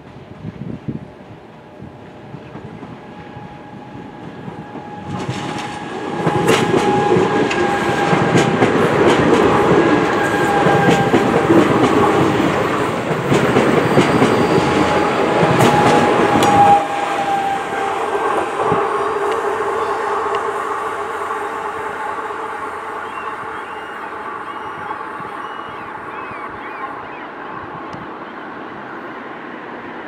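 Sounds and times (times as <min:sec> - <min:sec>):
train wheels rumbling on rail: 0:00.0 - 0:30.0
steady high tone: 0:13.6 - 0:27.7.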